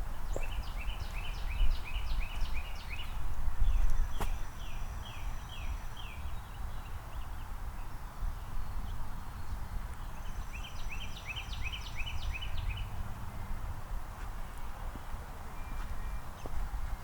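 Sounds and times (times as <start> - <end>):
songbird singing: 0.0 - 13.2, 14.3 - 17.0.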